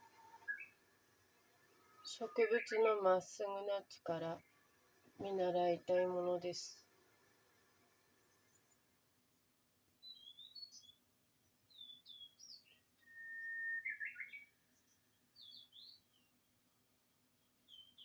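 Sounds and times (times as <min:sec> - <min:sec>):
songbird chirping: 0:00.0 - 0:18.0
bird long held whistle: 0:13.0 - 0:14.5.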